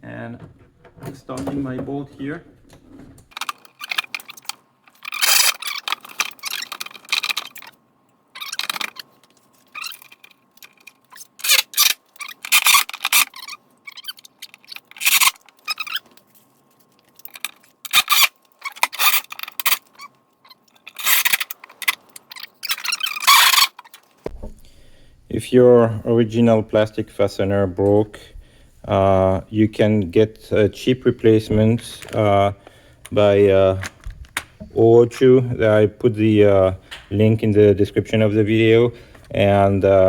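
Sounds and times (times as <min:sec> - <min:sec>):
tools scraping and rattling: 0:00.4 - 0:07.8, 0:08.4 - 0:24.3.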